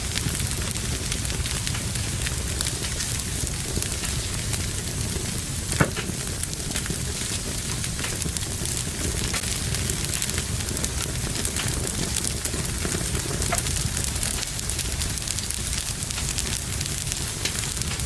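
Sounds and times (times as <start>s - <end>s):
wood fire crackling: 0.0s - 18.0s
loud fire pop: 5.6s - 14.7s.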